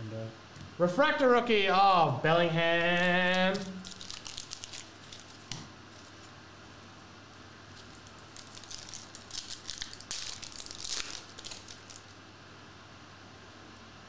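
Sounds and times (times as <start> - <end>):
foil wrapper crinkling: 2.8 - 6.3, 7.7 - 12.2.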